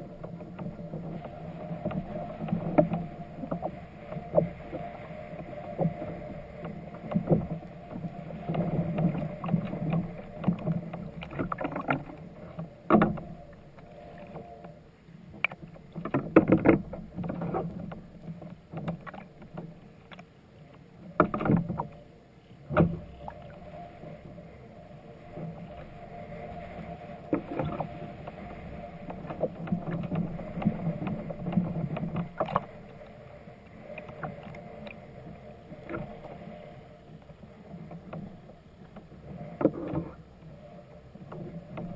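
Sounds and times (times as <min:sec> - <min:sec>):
knocks and handling on kayak: 0:00.0 - 0:13.6, 0:15.4 - 0:20.3, 0:21.1 - 0:22.0, 0:22.6 - 0:23.5, 0:27.1 - 0:32.8, 0:37.8 - 0:40.2.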